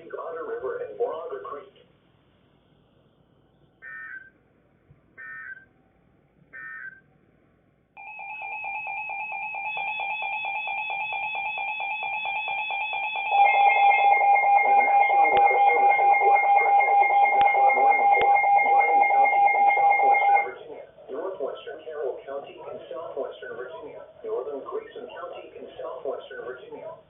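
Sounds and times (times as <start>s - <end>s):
pulsing electronic alarm tone: 3.8s - 4.3s, 5.2s - 5.7s, 6.6s - 7.0s, 8.0s - 20.7s
data tone bursts: 13.3s - 20.6s.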